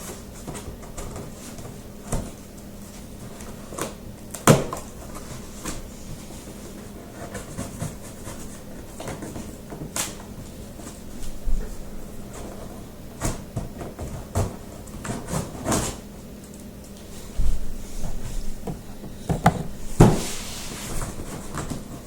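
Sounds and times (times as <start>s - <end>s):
cardboard box rustling and scraping: 4.9s - 9.7s, 17.2s - 22.0s
knocks on cardboard box: 18.6s - 20.2s.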